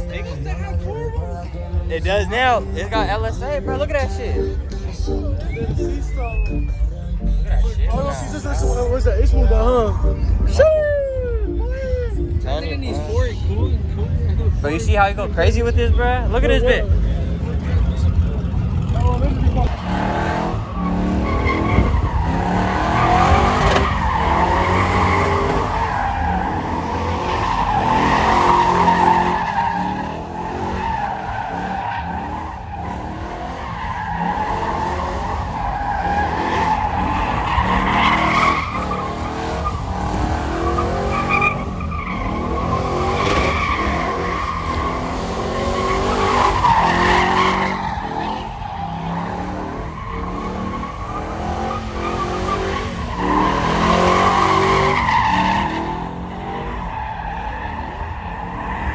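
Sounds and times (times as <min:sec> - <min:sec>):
engine low rumble: 0:00.0 - 0:24.5
tyres squealing: 0:14.6 - 0:58.9.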